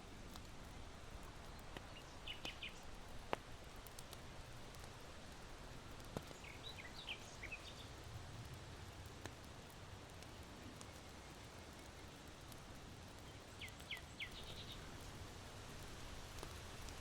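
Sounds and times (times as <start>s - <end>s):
charcoal crackling and popping: 0.0s - 17.0s
wind through bamboo: 0.0s - 17.0s
small birds chirping: 1.1s - 3.2s, 5.9s - 8.2s, 9.0s - 17.0s.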